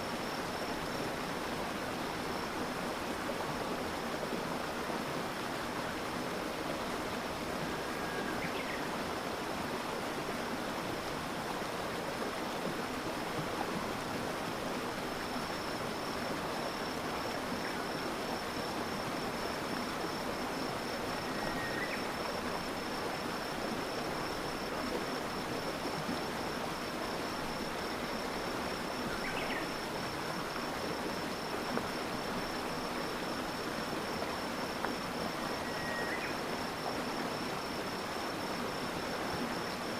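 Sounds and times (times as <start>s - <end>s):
river water flowing: 0.0s - 39.9s
high insect trill: 15.2s - 39.9s.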